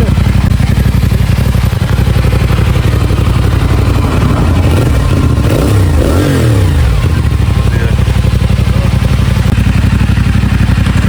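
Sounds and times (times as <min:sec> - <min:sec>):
motorcycle engine running and revving: 0:00.0 - 0:11.0.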